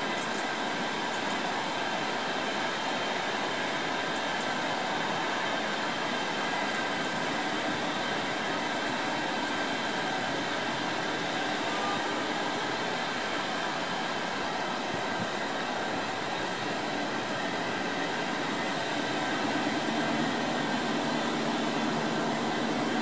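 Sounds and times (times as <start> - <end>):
train rushing hum: 0.0 - 23.0.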